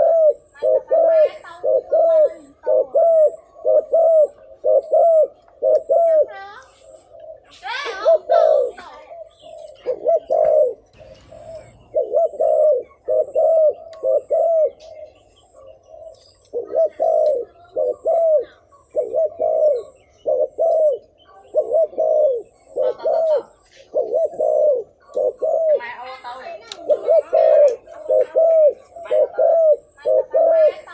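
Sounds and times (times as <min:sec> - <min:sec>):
dove cooing: 0:00.0 - 0:30.9.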